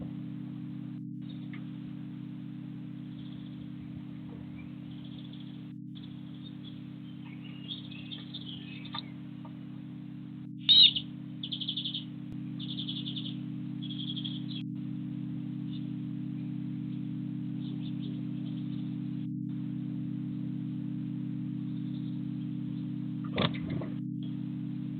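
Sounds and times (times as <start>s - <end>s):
steady low hum: 0.0s - 24.9s
bird trills: 3.0s - 9.6s, 10.6s - 14.7s, 15.6s - 19.3s
bird call: 4.3s - 9.5s, 10.6s - 14.6s.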